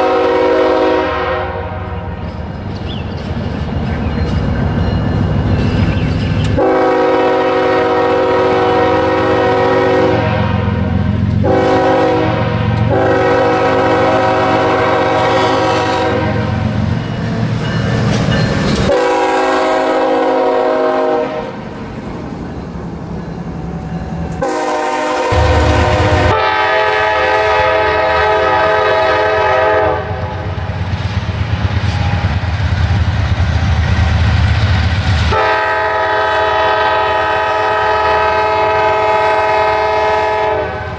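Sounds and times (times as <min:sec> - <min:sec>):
locomotive air horn blasts: 0:00.0 - 0:02.0, 0:06.6 - 0:16.6, 0:18.8 - 0:21.6, 0:24.4 - 0:30.5, 0:35.3 - 0:40.9
locomotive and train rumble: 0:00.0 - 0:40.9.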